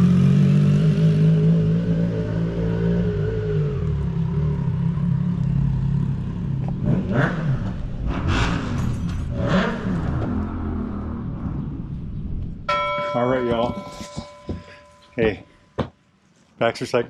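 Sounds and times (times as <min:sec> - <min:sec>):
motorcycle engine revving: 0:00.0 - 0:12.2.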